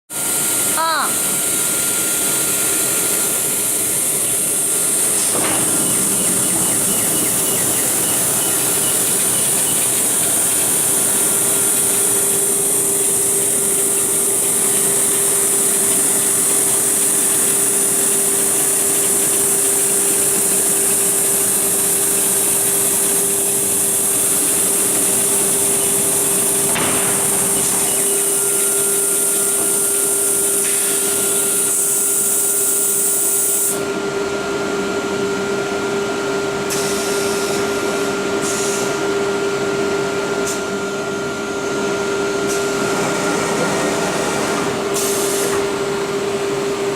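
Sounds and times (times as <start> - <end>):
router spindle whining: 0.4 - 29.9, 41.5 - 46.1
dust extraction noise: 42.1 - 45.9.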